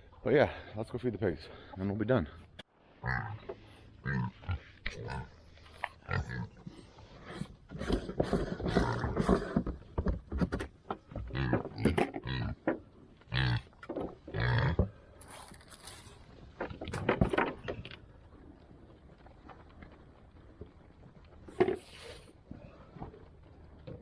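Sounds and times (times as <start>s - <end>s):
pigs grunting and squealing: 3.0s - 9.8s, 11.2s - 12.6s, 13.3s - 15.0s.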